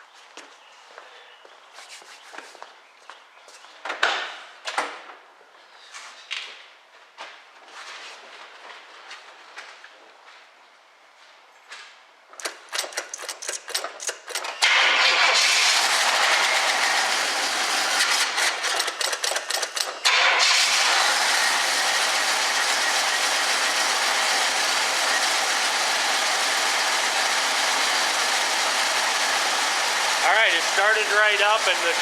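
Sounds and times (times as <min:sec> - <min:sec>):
starter cranking: 0:12.4 - 0:17.2, 0:18.0 - 0:20.1
car engine running and idling: 0:14.7 - 0:20.2, 0:20.8 - 0:32.0.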